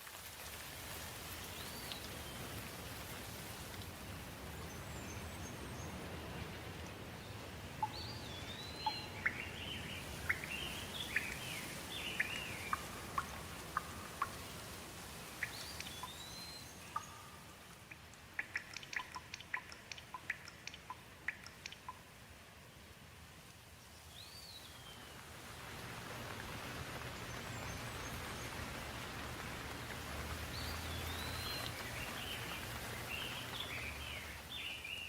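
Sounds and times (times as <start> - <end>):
water drips ticking: 0.0 - 4.7, 5.9 - 7.1, 7.7 - 22.3, 25.7 - 35.0
steady rainfall: 0.0 - 35.0
birds chirping and whistling: 30.6 - 35.0.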